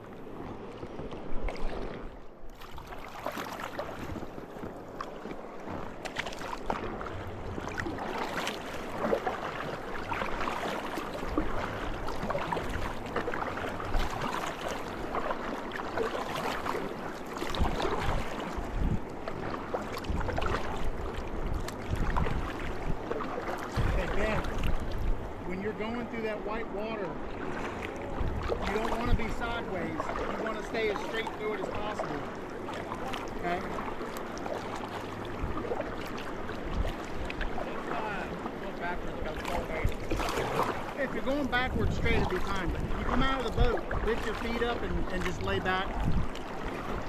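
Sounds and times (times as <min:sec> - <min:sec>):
river water rushing and splashing: 0:00.0 - 0:47.0
wind rumble on microphone: 0:16.2 - 0:26.1, 0:27.4 - 0:32.2, 0:34.7 - 0:47.0.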